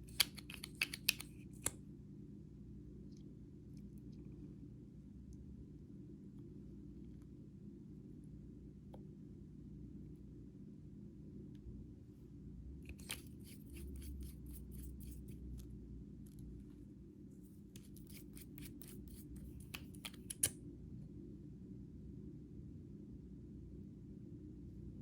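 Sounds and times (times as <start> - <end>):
faint steady low hum: 0.0 - 25.0
small sharp clicks or snips: 18.0 - 20.6.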